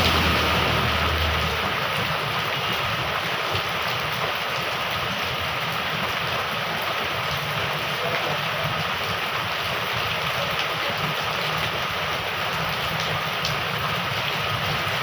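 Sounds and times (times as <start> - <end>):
vehicle engine hum: 0.0 - 3.0
heavy rain pouring: 0.0 - 15.0.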